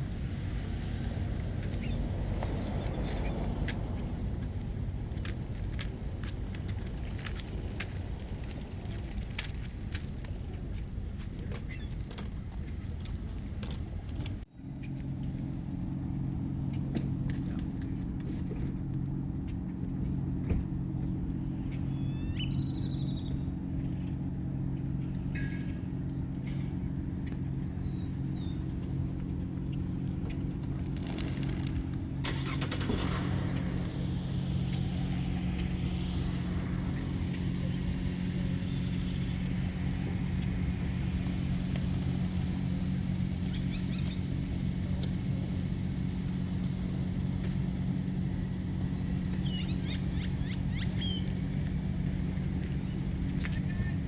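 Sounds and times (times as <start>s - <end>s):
low motor hum: 0.0s - 54.0s.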